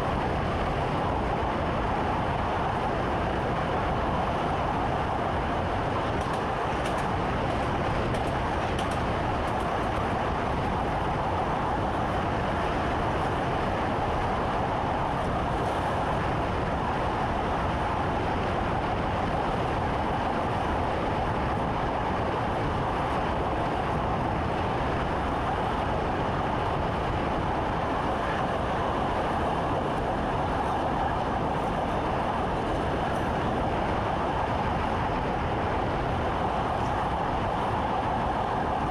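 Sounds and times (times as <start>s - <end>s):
electric train rumble and hum: 0.0s - 38.9s.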